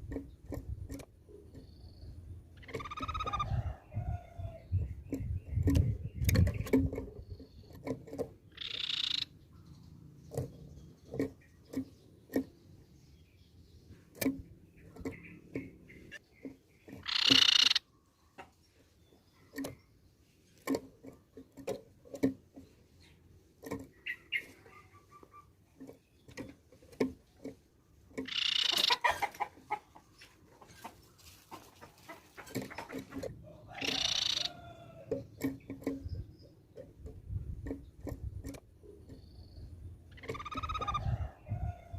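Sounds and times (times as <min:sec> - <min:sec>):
bird harsh churring calls: 0:02.6 - 0:03.5, 0:08.5 - 0:09.4, 0:17.0 - 0:17.9, 0:24.0 - 0:25.5, 0:28.2 - 0:29.8, 0:33.7 - 0:34.7, 0:40.1 - 0:41.1.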